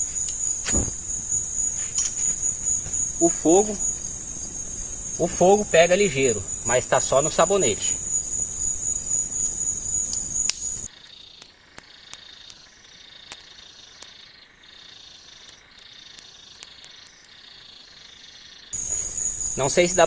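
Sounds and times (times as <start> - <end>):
campfire popping and ticking: 0.0 - 20.0
insects chirring: 0.0 - 20.0.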